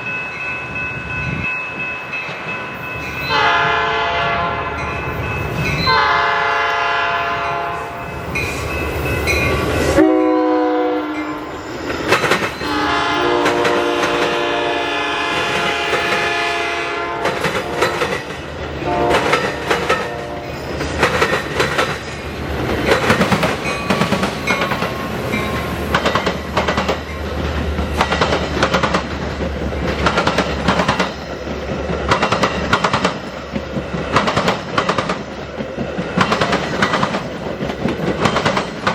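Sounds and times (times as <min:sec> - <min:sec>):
train horn chords: 0:03.3 - 0:04.9, 0:05.9 - 0:08.0, 0:10.0 - 0:11.6, 0:12.6 - 0:20.6
train wheels clacking on rail joints: 0:08.2 - 0:38.9.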